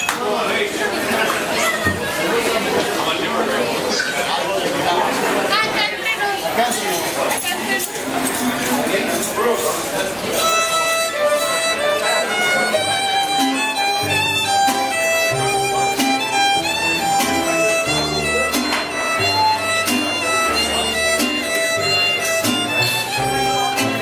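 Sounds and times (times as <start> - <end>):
violin melody: 10.3 - 24.0
steady beat: 12.4 - 24.0
plucked bass line: 13.0 - 24.0.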